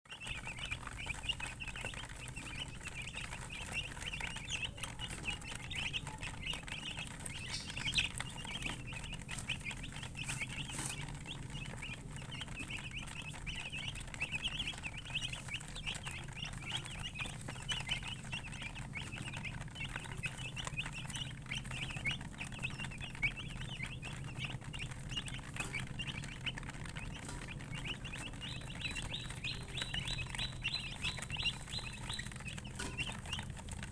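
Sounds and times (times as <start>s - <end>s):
chicks peeping: 0.0s - 33.9s.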